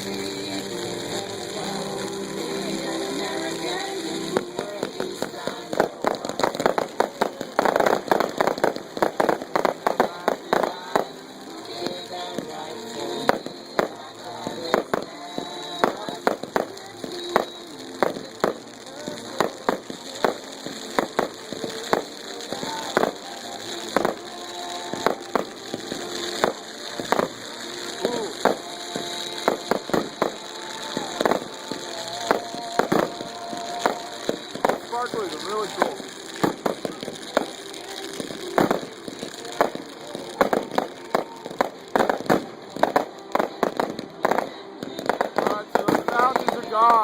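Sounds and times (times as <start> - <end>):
fireworks crackling hiss: 0.0 - 47.0
fireworks popping: 0.0 - 47.0
song playing in background: 0.0 - 47.0.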